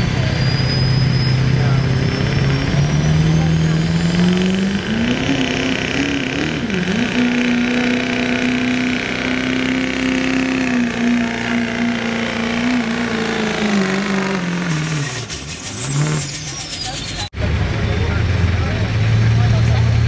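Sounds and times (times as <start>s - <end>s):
diesel engine at high revs: 0.0s - 20.0s
high-pitched turbo whistle: 0.2s - 1.8s.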